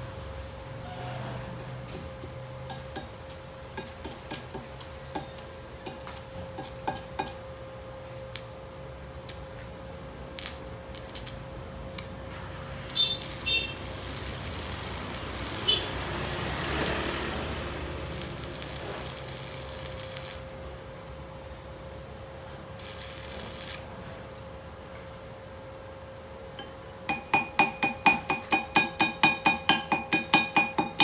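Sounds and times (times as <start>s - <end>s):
arc welding crackle and hiss: 1.5s - 21.2s, 21.9s - 24.4s.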